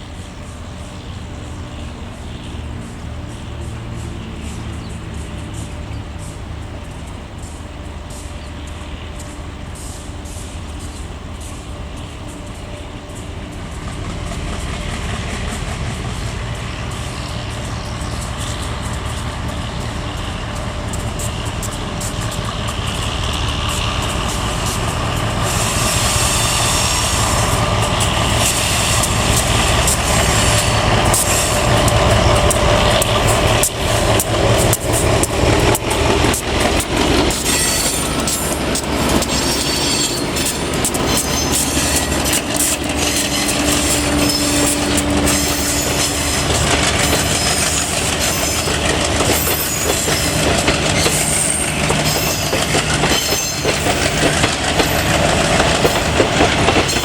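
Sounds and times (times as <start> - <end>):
train rumble: 0.0 - 57.0
train wheels clattering over rail joints: 0.0 - 57.0
wheel squeal: 37.0 - 57.0.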